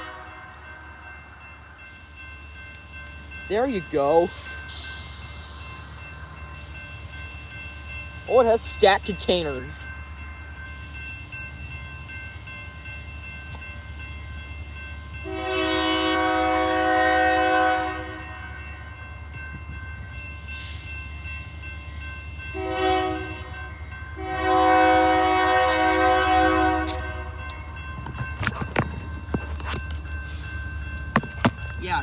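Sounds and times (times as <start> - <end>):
train air horn blasts: 0.0 - 0.5, 15.2 - 18.2, 22.6 - 23.5, 24.2 - 27.3
crossing bell ringing: 0.0 - 32.0
freight train rumbling past: 0.0 - 32.0.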